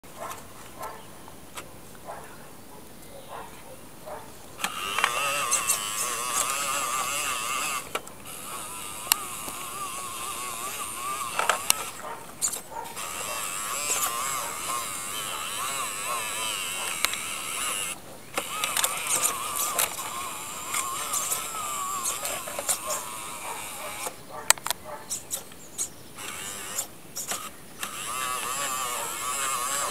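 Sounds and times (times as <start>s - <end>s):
toy truck motor whining: 4.6s - 24.2s, 26.2s - 29.9s.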